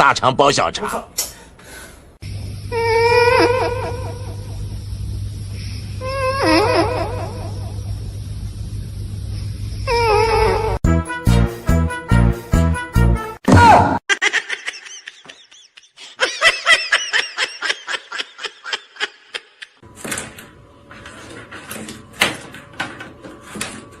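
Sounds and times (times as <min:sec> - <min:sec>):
person laughing: 0:03.2 - 0:04.6, 0:14.1 - 0:19.8.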